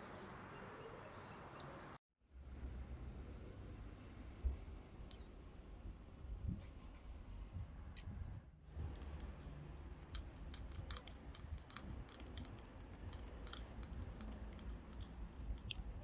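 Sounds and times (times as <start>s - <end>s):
faint small clicks and crackles: 8.8s - 16.0s.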